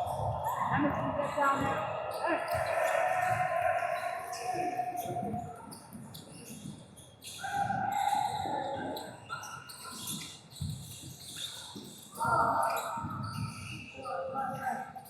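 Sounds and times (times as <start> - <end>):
spectators shouting: 1.6 - 5.2.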